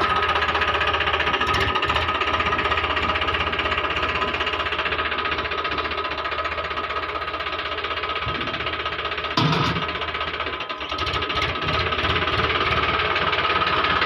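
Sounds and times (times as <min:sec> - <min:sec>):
tractor engine chugging: 0:00.0 - 0:14.0.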